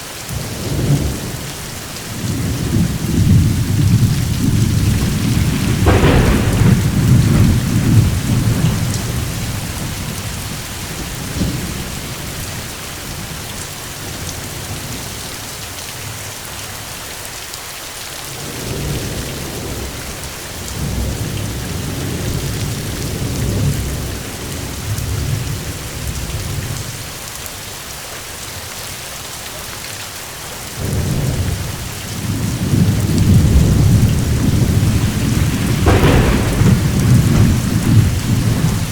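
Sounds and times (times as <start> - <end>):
steady rain: 0.0 - 38.9
thunderclap: 0.3 - 13.4, 30.8 - 38.9
rolling thunder rumbles: 0.3 - 15.1, 30.8 - 38.9.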